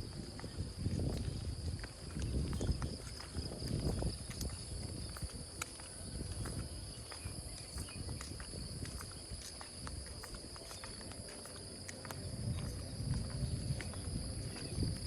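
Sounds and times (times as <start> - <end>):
gentle rain: 0.0 - 15.0
insects chirring: 0.0 - 15.0.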